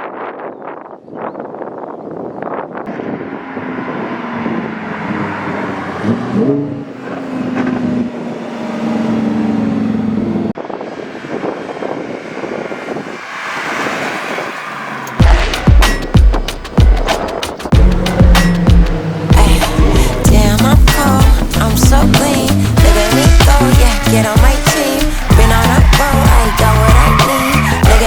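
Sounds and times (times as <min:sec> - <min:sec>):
car engine running: 0:02.9 - 0:28.0
rushing noise: 0:10.5 - 0:28.0
heavy music beat: 0:15.2 - 0:28.0.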